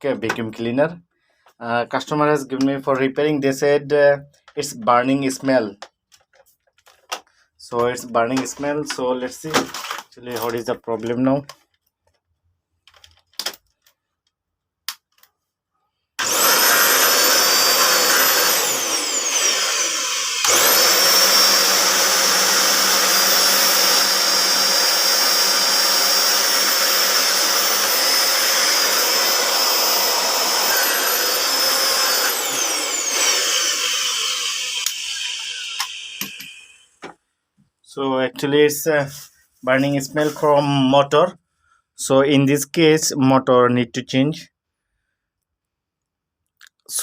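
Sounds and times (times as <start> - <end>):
vacuum cleaner running: 16.2 - 36.9.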